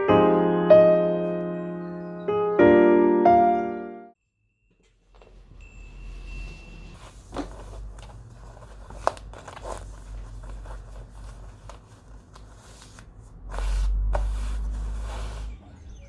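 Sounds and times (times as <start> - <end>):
crinkly rustling: 7.0 - 15.5.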